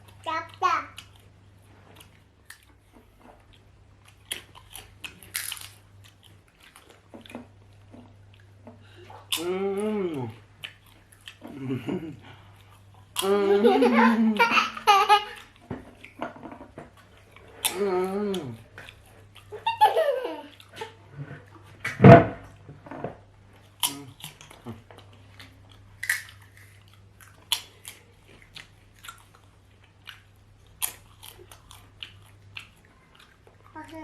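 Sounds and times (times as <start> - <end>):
chewing and crunching: 0.0 - 13.3, 15.3 - 19.7, 23.5 - 34.0
person humming: 9.4 - 10.4, 13.2 - 14.4, 17.7 - 18.6
loud thump: 22.0 - 22.4.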